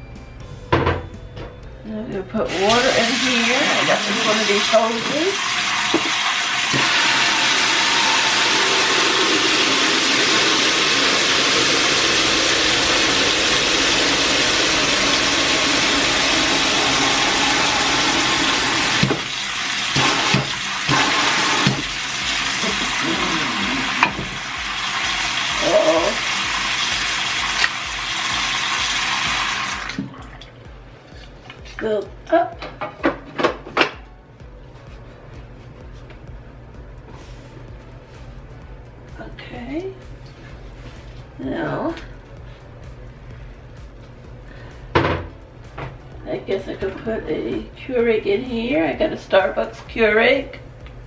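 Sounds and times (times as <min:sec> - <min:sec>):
tap water running: 0:02.5 - 0:31.2.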